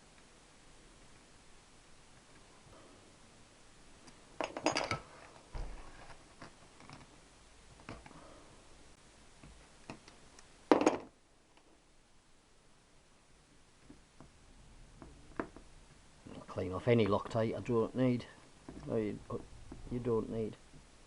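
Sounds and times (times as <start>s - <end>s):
metal parts clinking on workbench: 4.4s - 5.1s.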